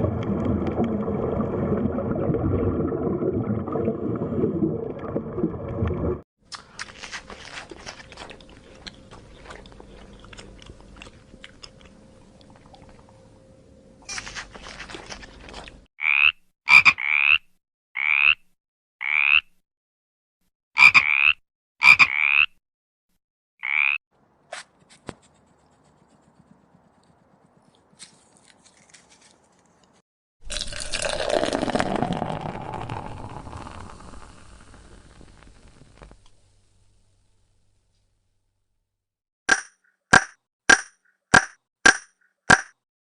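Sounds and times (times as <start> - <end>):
long rough sound: 30.5 - 36.2.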